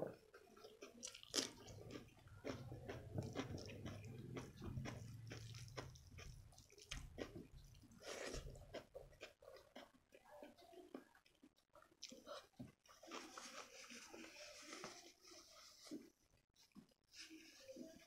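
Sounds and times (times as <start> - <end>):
wet chewing and mouth clicks: 0.1 - 13.8
cucumber crunch bite: 1.0 - 6.3.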